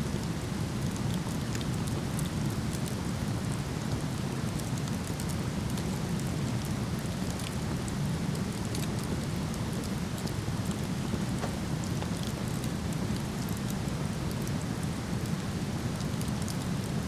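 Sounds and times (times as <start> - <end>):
wood fire crackling: 4.4 - 15.0.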